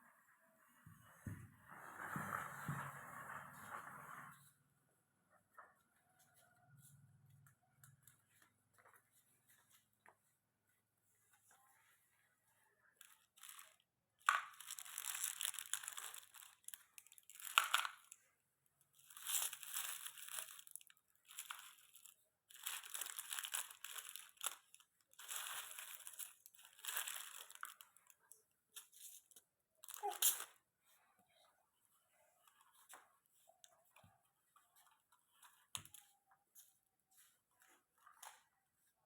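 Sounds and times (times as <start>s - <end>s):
candies crunching and crinkling: 13.0s - 18.2s, 18.9s - 30.6s.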